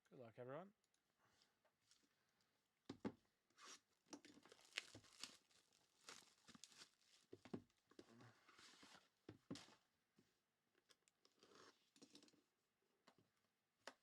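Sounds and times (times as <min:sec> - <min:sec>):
plastic shrink wrap tearing: 0:04.3 - 0:07.3.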